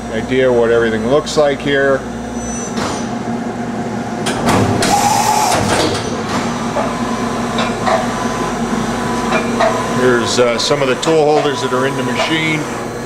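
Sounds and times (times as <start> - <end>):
machine hum: 0.0 - 13.0
machine whirring: 2.2 - 13.0
brief machine whine: 2.3 - 3.1, 4.8 - 5.9.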